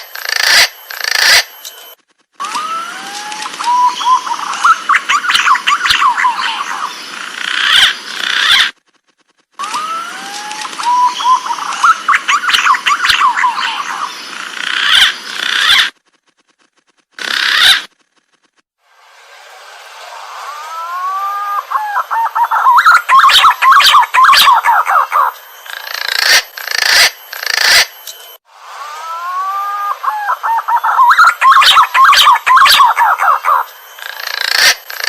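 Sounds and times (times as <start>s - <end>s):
pigeon whistling calls: 3.6s - 7.0s, 10.8s - 14.2s, 20.7s - 25.4s, 29.0s - 34.8s.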